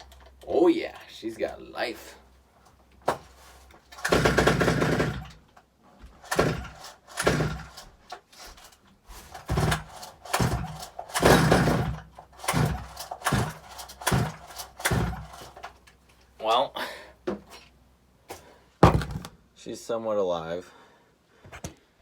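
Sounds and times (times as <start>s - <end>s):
chainsaw engine sputtering: 3.9s - 5.4s, 6.2s - 7.8s, 9.3s - 15.7s.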